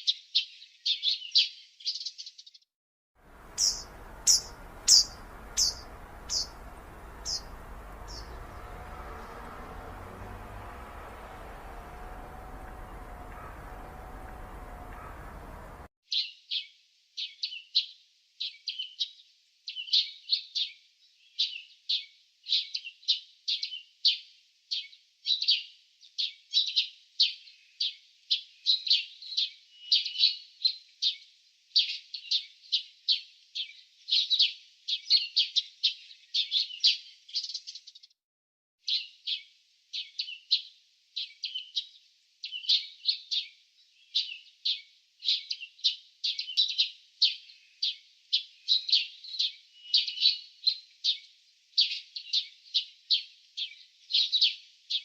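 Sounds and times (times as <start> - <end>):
small birds chirping: 3.3 - 16.3, 40.0 - 55.0.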